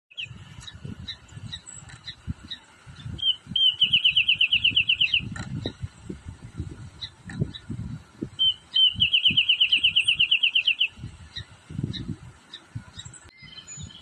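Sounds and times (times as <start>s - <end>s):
bird singing rapid trill: 0.1s - 5.8s, 7.0s - 14.0s.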